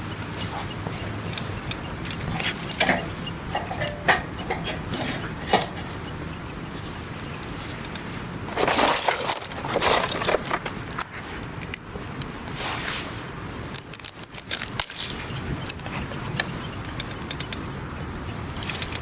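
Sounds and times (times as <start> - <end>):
noisy surges: 0.0 - 9.8
campfire crackling and popping: 0.0 - 19.0.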